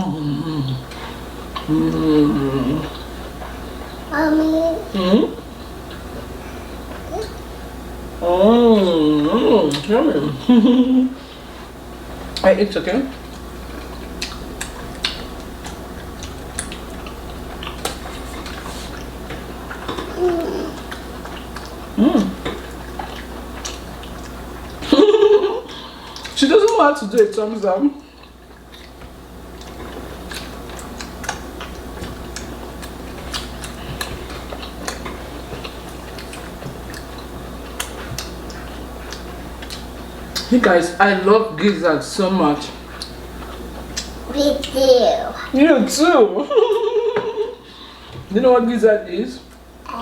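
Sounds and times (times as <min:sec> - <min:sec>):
steady low hum: 0:00.0 - 0:50.0
mouths chewing: 0:13.2 - 0:24.9, 0:28.1 - 0:40.6.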